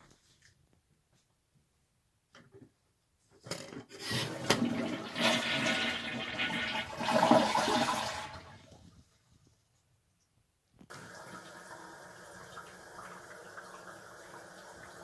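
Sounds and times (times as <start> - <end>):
toilet flushing: 4.0 - 8.8, 10.9 - 15.0.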